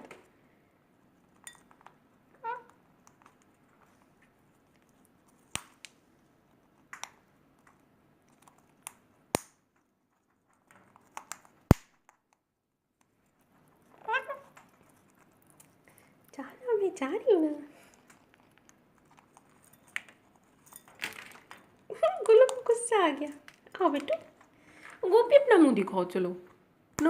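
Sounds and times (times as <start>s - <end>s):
parrot beaks clicking and cracking: 1.5s - 6.0s, 6.6s - 13.2s, 13.9s - 16.3s, 17.8s - 24.8s.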